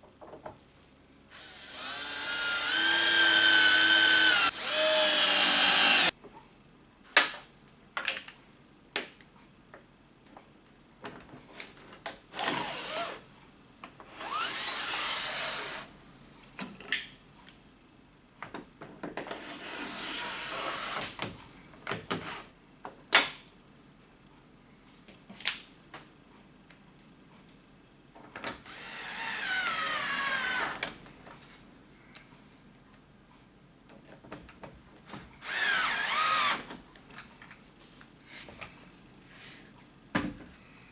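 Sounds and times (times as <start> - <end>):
power drill running: 1.4 - 6.1, 14.2 - 15.9, 28.7 - 30.9, 35.4 - 36.7.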